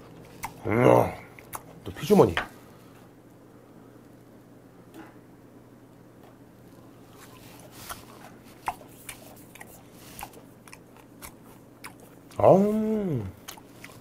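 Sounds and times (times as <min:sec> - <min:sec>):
person chewing: 0:00.0 - 0:01.8, 0:06.6 - 0:14.0
mouth and teeth clicks: 0:07.9 - 0:12.2
drawn-out vocal exclamation: 0:12.4 - 0:13.4.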